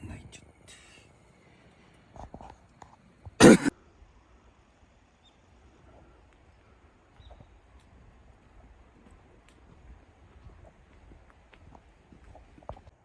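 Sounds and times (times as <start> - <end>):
person coughing: 3.4 - 3.8.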